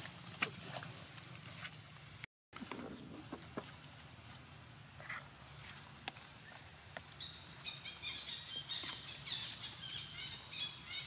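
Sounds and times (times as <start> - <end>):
birds chirping: 6.2 - 11.0.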